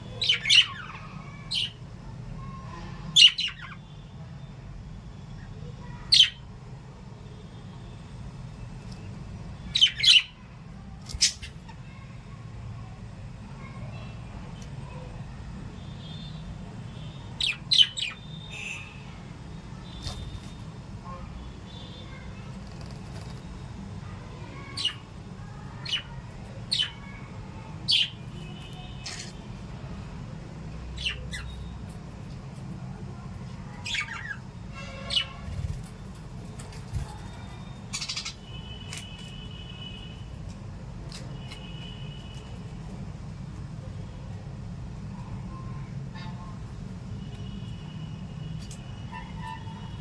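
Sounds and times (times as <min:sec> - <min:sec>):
parrots calling: 0:00.1 - 0:01.8, 0:09.7 - 0:10.4, 0:17.2 - 0:18.9, 0:24.5 - 0:25.1, 0:25.8 - 0:29.4, 0:31.0 - 0:31.7, 0:33.7 - 0:35.8, 0:36.5 - 0:39.5
parrots squawking: 0:00.1 - 0:01.8, 0:17.3 - 0:18.3, 0:29.0 - 0:29.4, 0:31.0 - 0:31.7, 0:33.7 - 0:35.4, 0:37.9 - 0:39.1.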